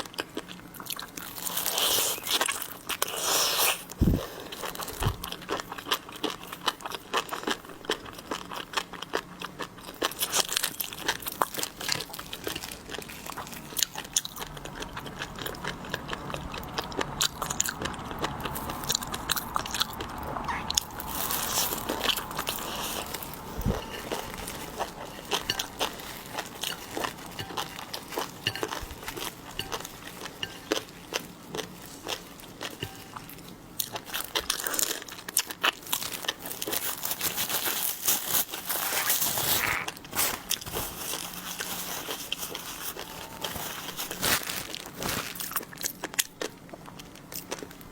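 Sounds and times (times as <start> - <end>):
crunching and chewing seafood: 0.0 - 47.9.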